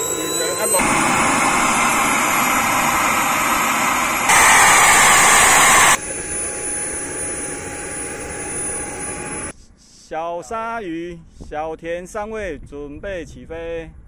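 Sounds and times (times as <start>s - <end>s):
model jet turbine whining: 0.1s - 9.5s.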